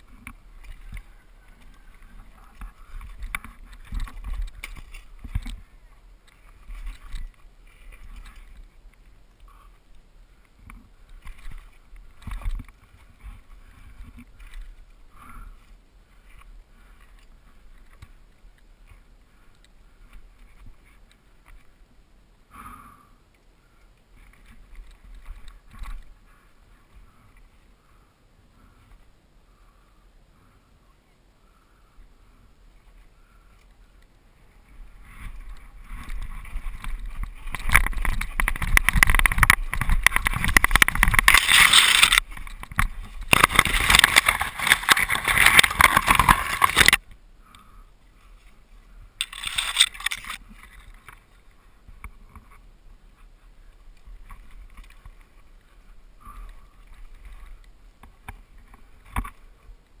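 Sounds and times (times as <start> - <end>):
wind noise on microphone: 0.0 - 19.1, 32.3 - 47.9
bike tyres crunching over rocks: 0.0 - 21.8, 34.5 - 47.1, 49.2 - 52.6.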